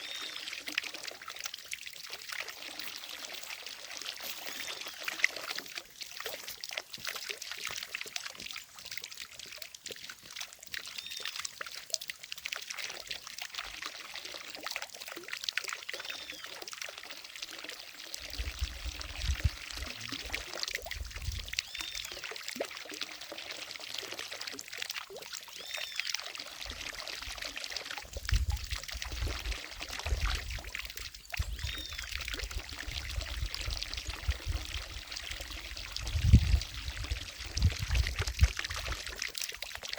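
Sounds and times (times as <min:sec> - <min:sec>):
fountain water splashing into lake: 0:00.0 - 0:39.9.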